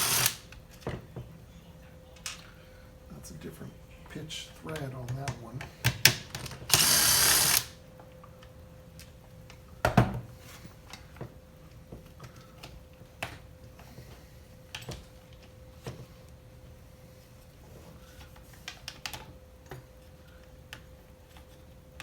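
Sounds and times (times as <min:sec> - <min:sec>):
power driver unscrewing: 0:00.0 - 0:00.4.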